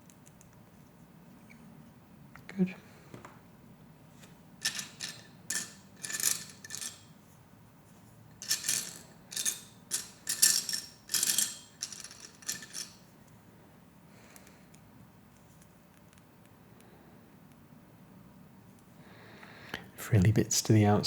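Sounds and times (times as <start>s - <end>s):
plastic pieces clattering: 4.6s - 7.0s, 8.4s - 13.0s.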